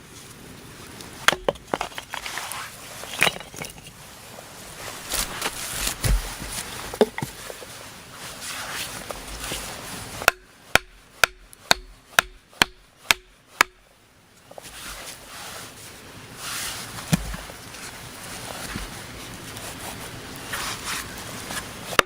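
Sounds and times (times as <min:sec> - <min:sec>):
rustling of handled material: 0:03.9 - 0:10.2, 0:14.5 - 0:22.0
hammer blows on wood: 0:10.2 - 0:13.8.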